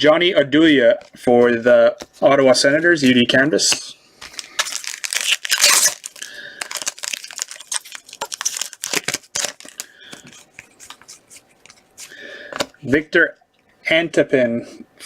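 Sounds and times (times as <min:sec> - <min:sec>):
cards rustling and clicking: 0:03.0 - 0:12.8
plastic wrapper crinkling and tearing: 0:04.2 - 0:12.1.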